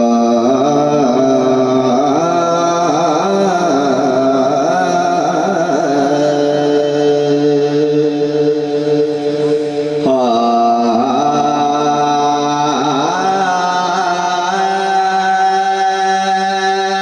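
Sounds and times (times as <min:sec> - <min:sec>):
man singing wordless melisma: 0:00.0 - 0:17.0
steady low drone tone: 0:07.8 - 0:13.6.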